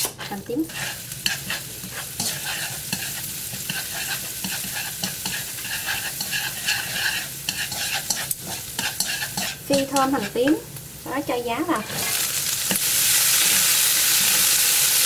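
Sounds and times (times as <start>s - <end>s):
shallots sizzling in hot oil: 0.0s - 15.0s
chopsticks tapping a pan: 1.3s - 10.6s.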